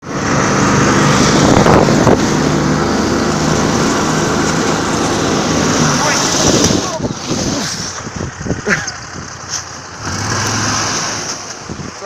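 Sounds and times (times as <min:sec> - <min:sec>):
snowmobile engine running: 0:00.0 - 0:12.0
wind buffeting microphone: 0:00.2 - 0:10.0, 0:11.4 - 0:12.0.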